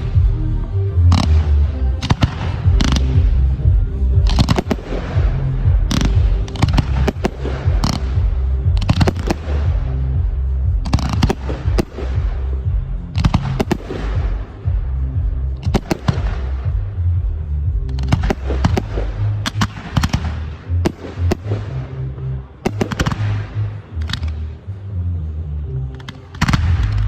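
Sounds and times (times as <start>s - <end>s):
music with low beat: 0.0s - 27.0s
fireworks banging and crackling: 1.2s - 21.8s, 22.6s - 24.3s.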